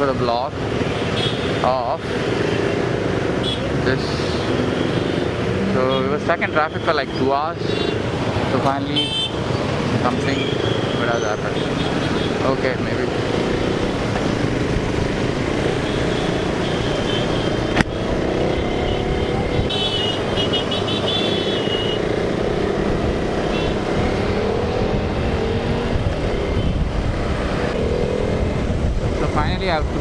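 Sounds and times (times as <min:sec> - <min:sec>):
road traffic engines: 0:00.0 - 0:30.0
sharp click: 0:17.7 - 0:18.0.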